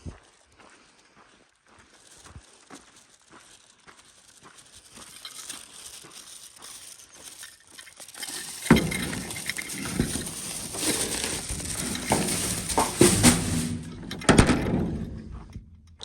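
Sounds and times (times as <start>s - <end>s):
footsteps walking: 0.0s - 16.0s
loud rustling: 4.8s - 15.3s.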